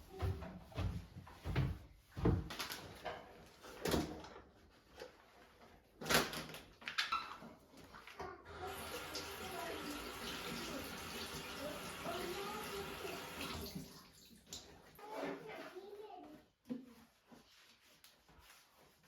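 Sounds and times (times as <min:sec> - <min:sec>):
tap water running: 0:08.5 - 0:15.0.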